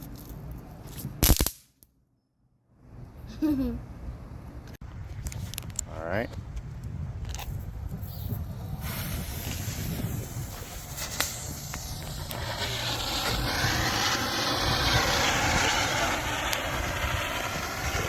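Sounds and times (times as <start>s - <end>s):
sharp cracks: 1.2s - 1.8s, 8.9s - 18.0s
wind rumble on microphone: 4.8s - 18.0s
firework hissing: 7.4s - 18.0s.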